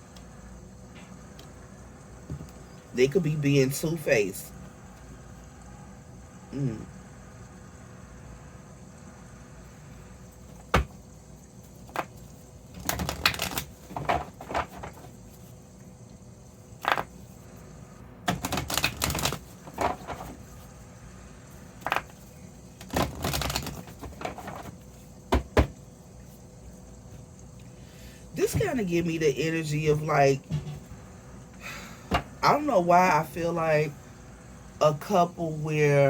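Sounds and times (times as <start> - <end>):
cards shuffling: 11.6 - 15.6, 16.8 - 17.3, 18.3 - 20.7, 21.8 - 25.7.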